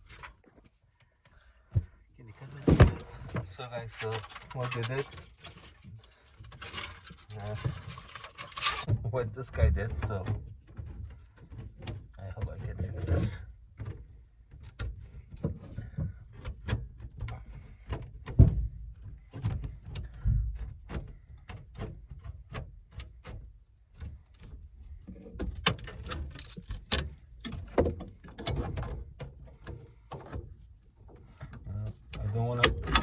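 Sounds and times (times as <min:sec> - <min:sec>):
hands handling equipment: 0:02.4 - 0:08.9.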